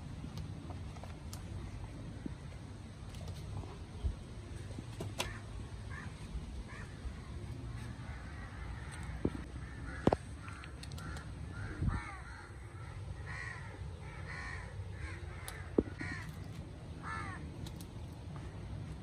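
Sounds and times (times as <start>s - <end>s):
bird calling: 5.0s - 17.8s.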